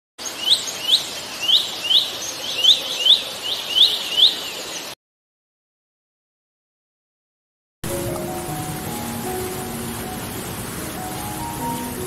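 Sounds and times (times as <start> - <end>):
small bird chirping: 0.2 - 5.0
steady background hiss: 7.9 - 12.0.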